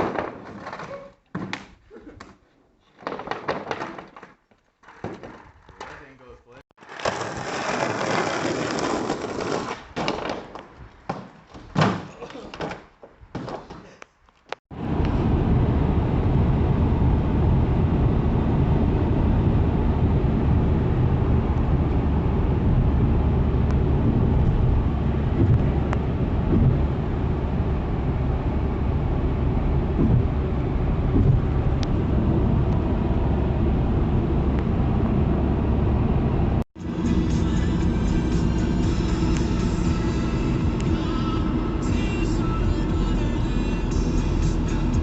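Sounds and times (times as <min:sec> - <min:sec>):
car driving on road: 0:14.7 - 0:45.0.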